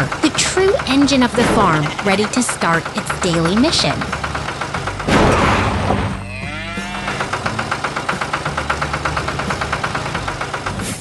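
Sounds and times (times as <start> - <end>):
fast pulsing: 0.0 - 5.2
cow mooing: 6.3 - 7.3.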